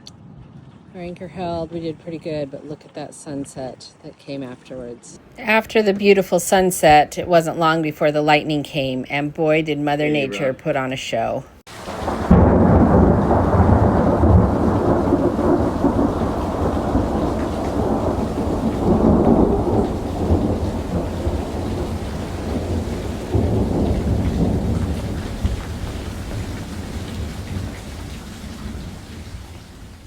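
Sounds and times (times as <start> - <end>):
rolling thunder rumbling: 0.0 - 3.8, 11.7 - 30.0.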